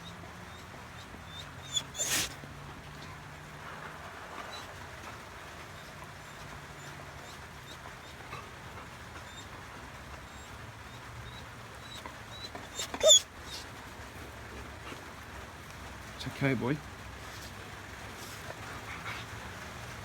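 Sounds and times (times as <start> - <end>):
dog whimpering: 1.3 - 2.4, 5.8 - 9.5, 10.2 - 13.8.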